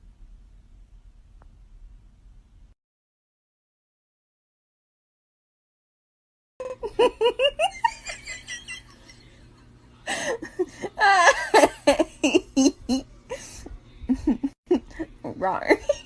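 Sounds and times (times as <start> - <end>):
high-pitched laughter: 6.6 - 9.2.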